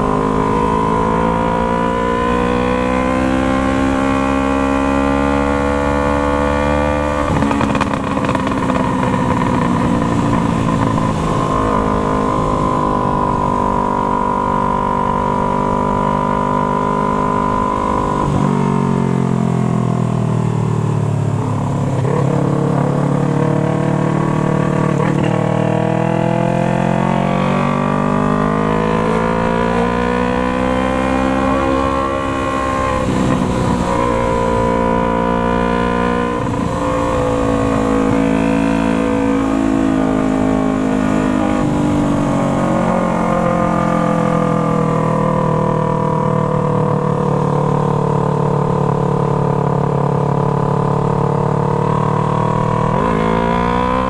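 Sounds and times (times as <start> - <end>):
motorcycle engine revving: 0.0 - 54.0
motorcycle gear change: 7.2 - 11.8.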